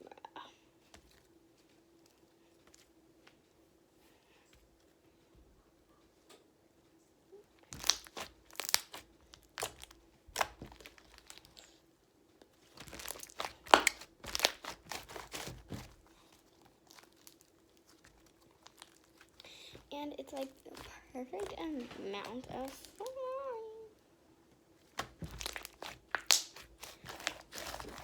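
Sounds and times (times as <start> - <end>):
slime crackling and popping: 7.6 - 11.8, 12.6 - 23.3, 24.8 - 28.0.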